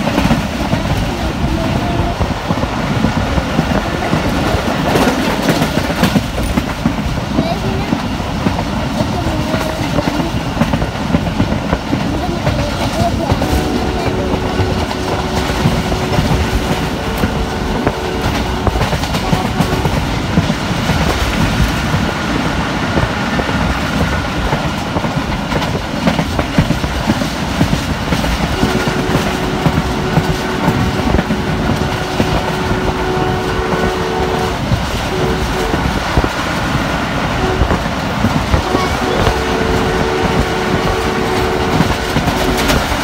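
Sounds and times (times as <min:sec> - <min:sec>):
train rumble: 0:00.0 - 0:43.0
wheels clattering over rail joints: 0:00.0 - 0:43.0
two-tone train horn: 0:13.3 - 0:20.3, 0:28.5 - 0:43.0.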